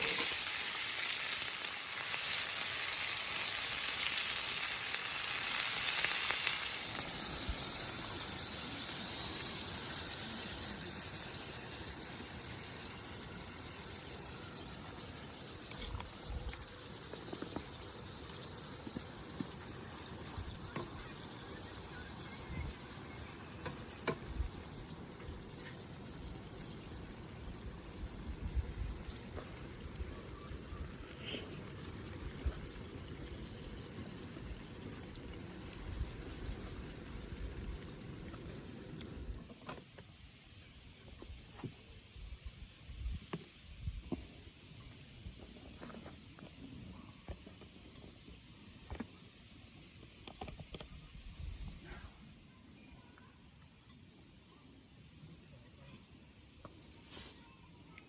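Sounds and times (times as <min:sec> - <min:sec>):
food sizzling in frying pan: 0:00.0 - 0:39.5.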